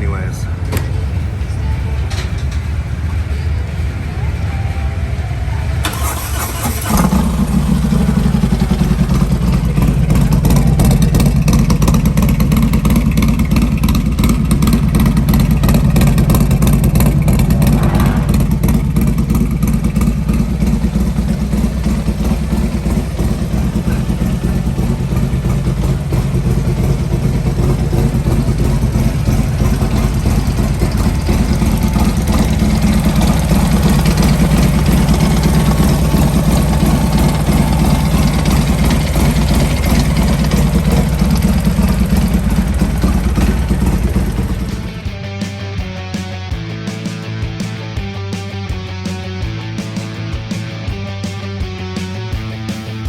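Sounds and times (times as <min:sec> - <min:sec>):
motorcycle engine idling loudly: 0:00.0 - 0:45.9
motorcycle engine cranking: 0:05.8 - 0:17.5, 0:18.9 - 0:45.0.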